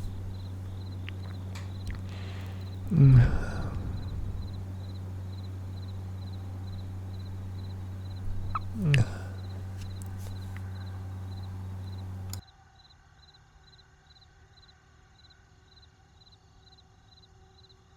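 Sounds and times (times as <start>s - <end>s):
crickets chirping: 0.0s - 12.4s
low steady hum: 0.0s - 12.4s.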